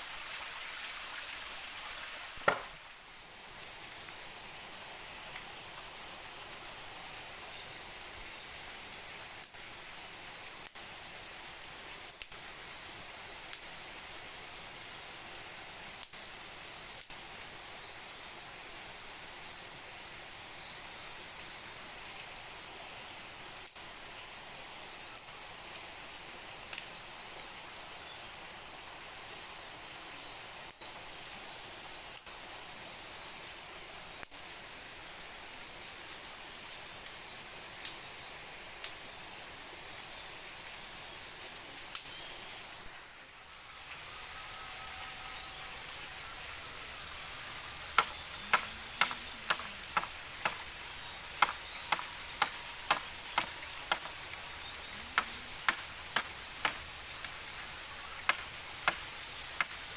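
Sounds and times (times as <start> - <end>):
insects chorus: 0.0 - 59.9.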